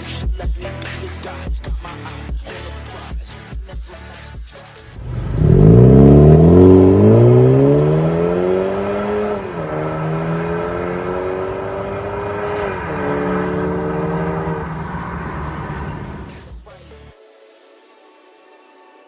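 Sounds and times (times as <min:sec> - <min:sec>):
car engine accelerating: 0:05.0 - 0:16.6.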